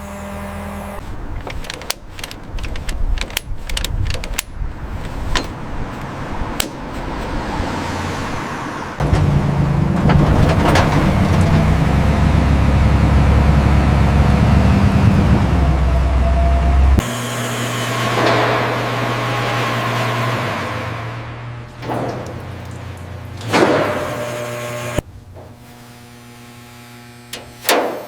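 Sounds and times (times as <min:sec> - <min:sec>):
car engine drone: 0:00.0 - 0:27.4
metallic clicks and clanks: 0:01.3 - 0:07.5.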